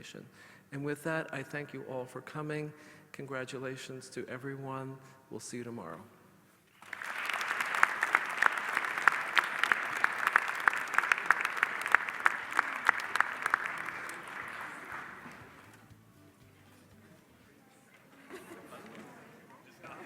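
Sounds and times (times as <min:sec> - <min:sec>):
audience applauding: 0:06.7 - 0:15.8.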